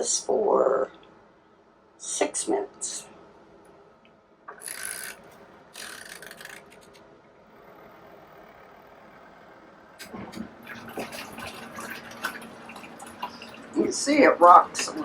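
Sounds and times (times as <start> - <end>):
washing machine motor agitating: 7.5 - 15.0
washing machine timer bursts: 7.6 - 15.0
sloshing and rattling: 9.9 - 15.0.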